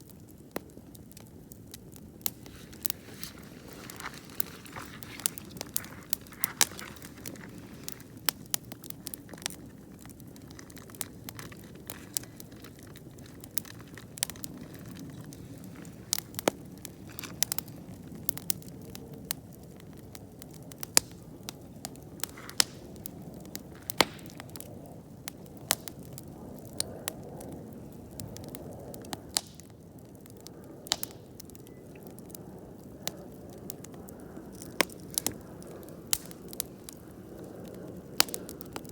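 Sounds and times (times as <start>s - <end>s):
campfire crackling and popping: 0.0s - 38.9s
flames hissing: 1.8s - 26.4s.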